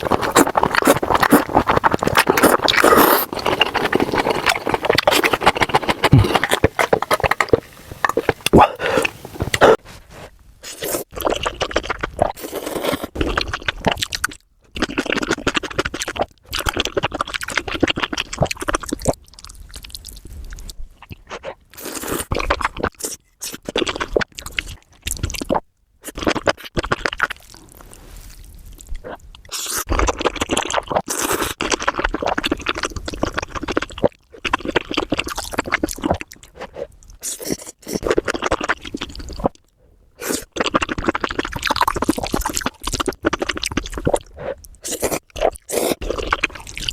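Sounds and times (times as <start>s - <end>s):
scraping: 0.0s - 9.8s
crunchy chewing: 0.0s - 9.9s, 10.6s - 46.9s.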